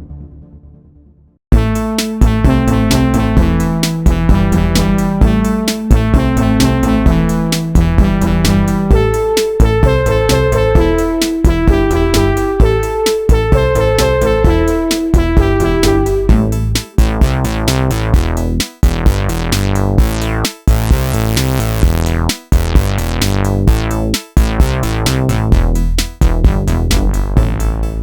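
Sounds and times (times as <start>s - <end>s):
drum machine beats: 1.5s - 28.0s
pulsing synth sequence: 1.6s - 16.6s.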